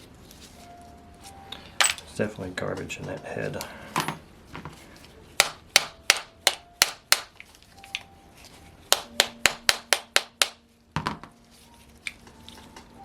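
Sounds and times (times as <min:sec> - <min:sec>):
hammer tapping metal: 0:05.4 - 0:07.3, 0:08.9 - 0:10.6.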